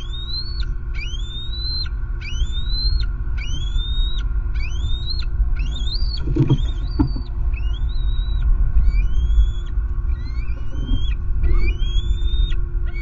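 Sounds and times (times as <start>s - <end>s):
bird whistling: 0.0s - 13.0s
wind rumble on microphone: 0.0s - 13.0s.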